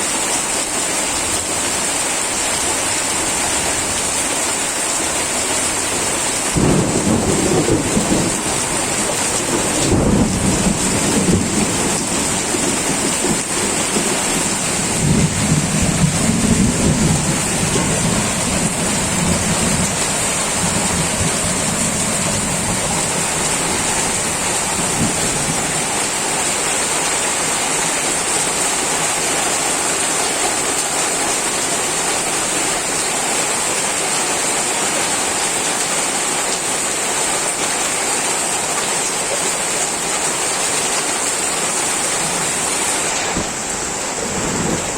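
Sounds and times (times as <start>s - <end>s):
heavy rain falling: 0.0s - 44.9s
low rumbles of thunder: 6.6s - 26.0s, 43.2s - 44.9s.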